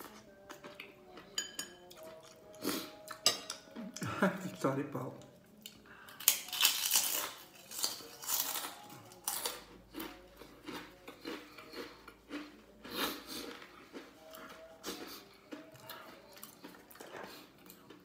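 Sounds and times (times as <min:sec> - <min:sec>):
crunchy bites and chewing: 0:06.2 - 0:14.0.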